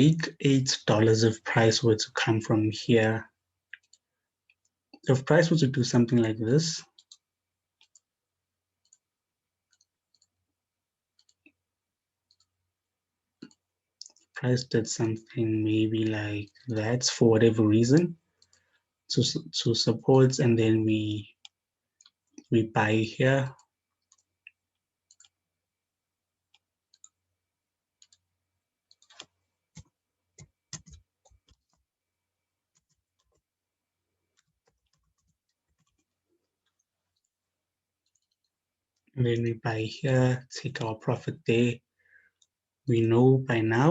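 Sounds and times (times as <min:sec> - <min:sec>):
computer mouse clicks: 0:03.7 - 0:05.1, 0:06.9 - 0:07.2, 0:07.8 - 0:08.1, 0:08.8 - 0:09.0, 0:09.7 - 0:10.3, 0:11.2 - 0:11.6, 0:12.3 - 0:12.5, 0:18.0 - 0:18.7, 0:24.0 - 0:25.4, 0:26.5 - 0:27.2, 0:28.0 - 0:28.2, 0:28.9 - 0:31.8, 0:32.7 - 0:33.4.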